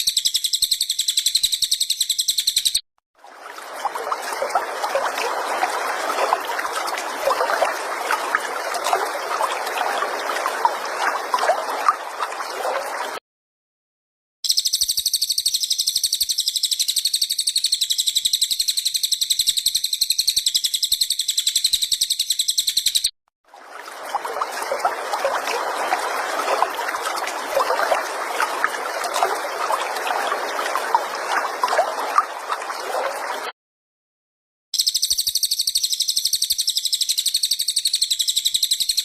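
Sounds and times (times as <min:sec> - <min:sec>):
bird chattering with short chirps: 0:00.0 - 0:02.8, 0:14.5 - 0:23.1, 0:34.8 - 0:39.0
songbird high trill: 0:00.0 - 0:02.8.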